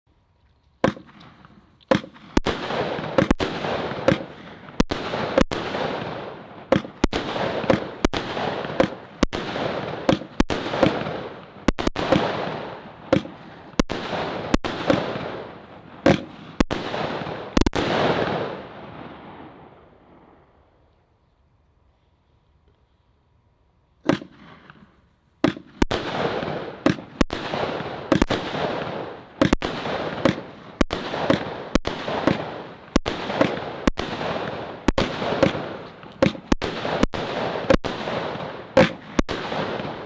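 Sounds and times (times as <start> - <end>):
firework cake bangs: 1.9 - 15.3, 25.4 - 40.0.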